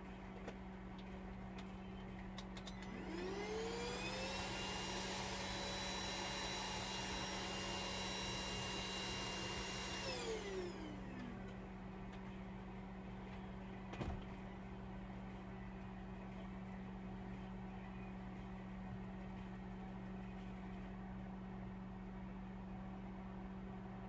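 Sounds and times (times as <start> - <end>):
small electric motor whining: 2.8 - 11.3.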